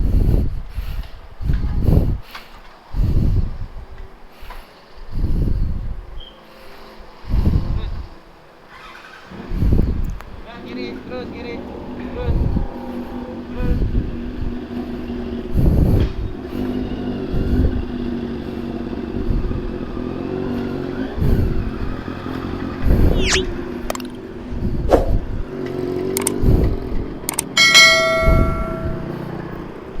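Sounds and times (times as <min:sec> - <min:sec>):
wind on microphone: 0:00.0 - 0:04.2, 0:05.1 - 0:06.2, 0:07.2 - 0:08.2, 0:09.4 - 0:10.6, 0:11.9 - 0:16.6, 0:19.1 - 0:20.2, 0:20.9 - 0:25.6, 0:26.2 - 0:29.1
short pitched beep: 0:23.2 - 0:23.5
sharp clicks: 0:26.1 - 0:26.4, 0:27.3 - 0:27.6.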